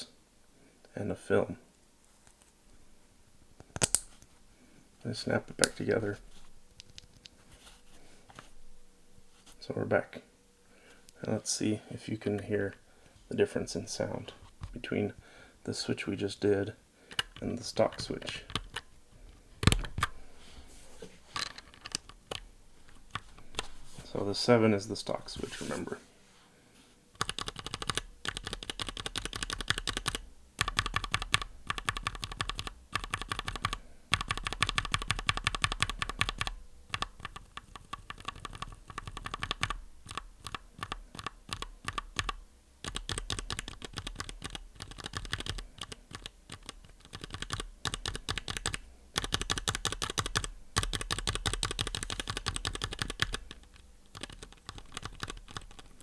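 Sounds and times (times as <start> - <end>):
mechanical keyboard keys clicking: 18.5 - 18.9, 27.2 - 55.9.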